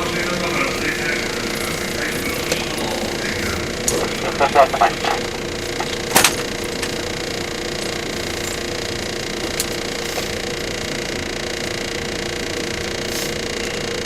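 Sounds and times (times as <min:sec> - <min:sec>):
train motors and wheels drone: 0:00.0 - 0:14.0.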